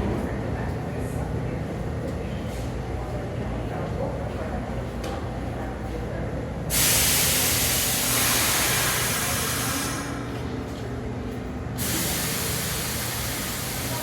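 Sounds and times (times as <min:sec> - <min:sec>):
train pneumatic air hiss: 0:06.7 - 0:10.3, 0:11.8 - 0:14.0.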